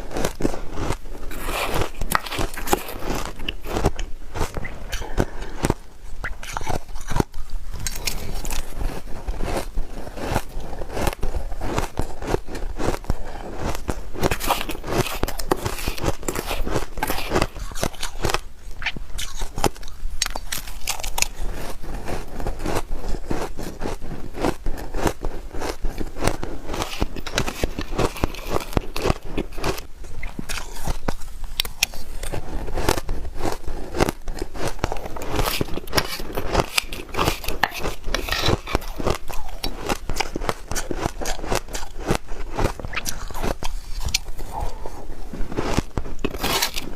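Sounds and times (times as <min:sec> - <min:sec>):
chewing crunchy shaved ice: 0:00.0 - 0:46.9.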